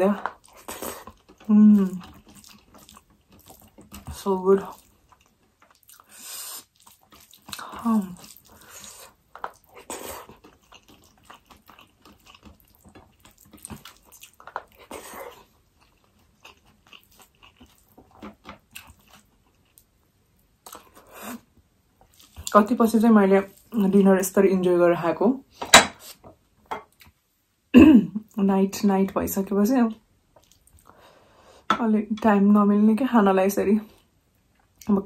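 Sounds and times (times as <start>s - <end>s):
wet chewing and lip smacks: 0.2s - 22.6s, 30.3s - 31.0s.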